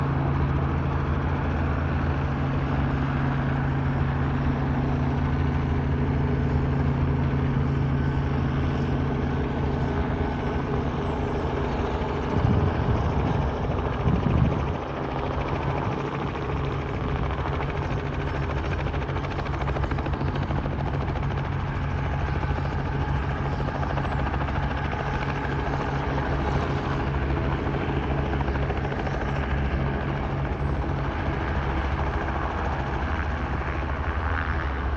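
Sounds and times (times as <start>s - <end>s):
helicopter rotor and engine drone: 0.0s - 34.9s.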